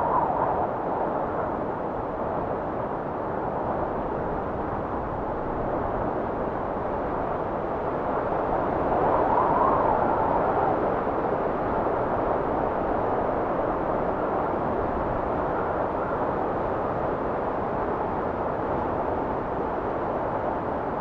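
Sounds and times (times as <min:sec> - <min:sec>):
blizzard wind blowing: 0:00.0 - 0:21.0.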